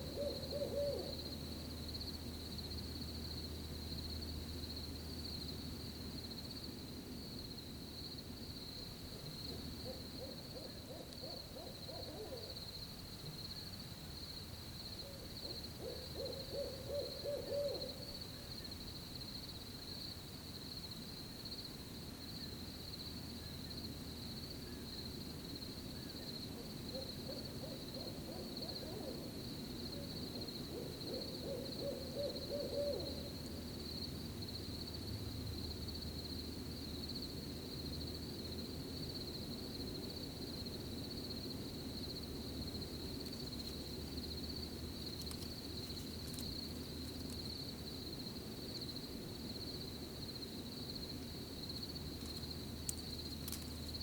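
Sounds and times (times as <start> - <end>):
owl hooting: 0.0 - 1.3, 9.5 - 12.6, 15.0 - 18.2, 26.0 - 29.4, 30.0 - 33.4
crickets chirring: 0.0 - 54.0.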